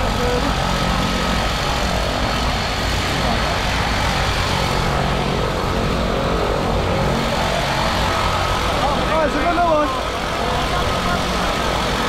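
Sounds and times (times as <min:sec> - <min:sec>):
propeller aircraft engine drone: 0:00.0 - 0:12.0.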